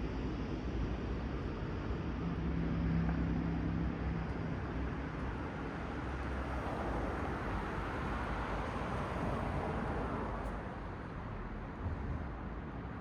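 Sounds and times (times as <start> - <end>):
cars passing on road: 2.0 - 12.3.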